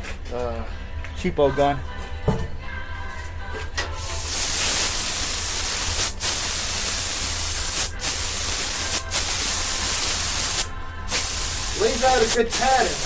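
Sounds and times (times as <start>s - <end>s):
spray gun hissing: 4.0s - 13.0s.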